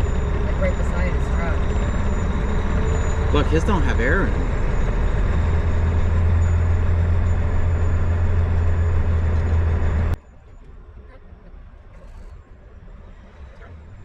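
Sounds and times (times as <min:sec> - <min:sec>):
diesel engine humming: 0:00.0 - 0:10.2.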